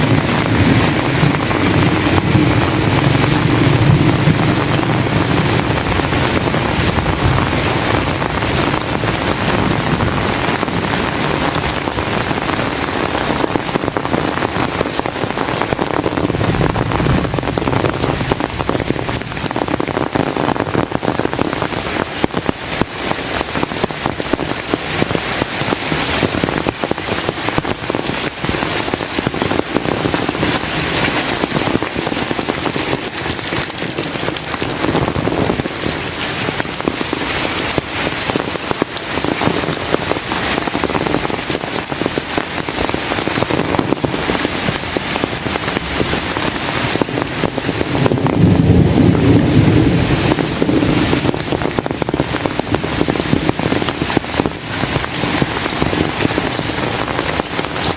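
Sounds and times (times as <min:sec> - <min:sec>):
heavy rain falling: 0:00.0 - 0:57.9
thunder rumbling: 0:00.0 - 0:57.9.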